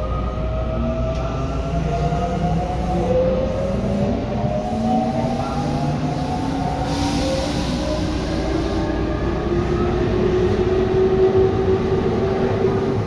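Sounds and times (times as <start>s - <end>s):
hiss: 6.2s - 8.8s.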